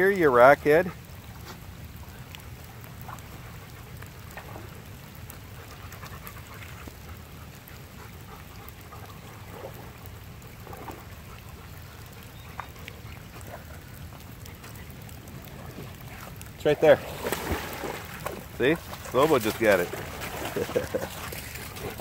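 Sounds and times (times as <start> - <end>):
rain pattering on water: 0.0 - 22.0
dog splashing in water: 11.9 - 22.0.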